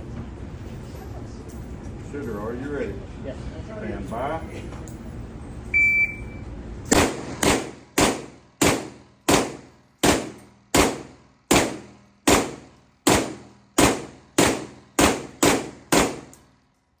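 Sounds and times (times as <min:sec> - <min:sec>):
shot timer beep: 0:05.8 - 0:06.4
semi-automatic gunshots: 0:06.9 - 0:16.3.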